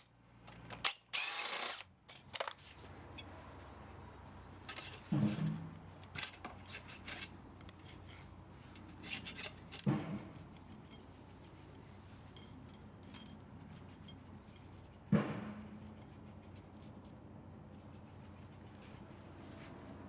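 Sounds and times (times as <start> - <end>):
tools and metal parts clinking: 2.1 - 3.3, 4.6 - 14.8.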